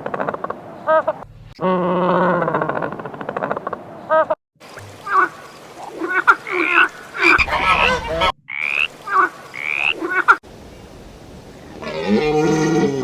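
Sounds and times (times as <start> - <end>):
frogs croaking: 4.6 - 10.4.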